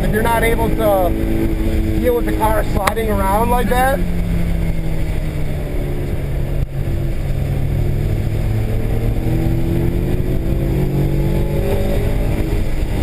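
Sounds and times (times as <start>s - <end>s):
car engine running under load: 0.0s - 13.0s
tyre and road noise: 0.0s - 13.0s.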